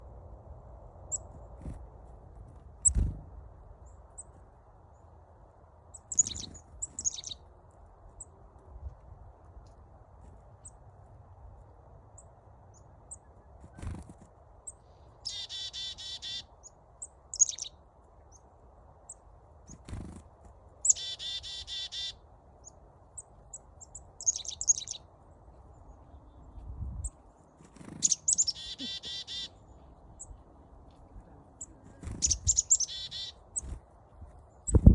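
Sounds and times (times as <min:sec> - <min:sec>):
chickadees calling: 0:06.0 - 0:07.4, 0:15.2 - 0:16.5, 0:17.3 - 0:17.7, 0:20.8 - 0:22.2, 0:23.8 - 0:25.0, 0:27.8 - 0:29.6, 0:31.6 - 0:33.8.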